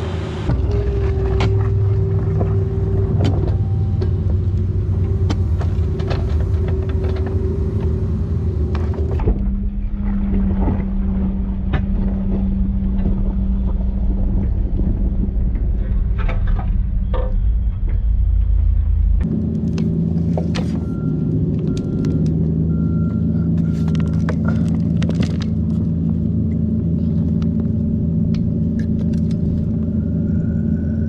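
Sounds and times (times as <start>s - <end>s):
excavator diesel engine running: 0.0s - 31.0s
bucket clanking and scraping: 23.6s - 25.9s.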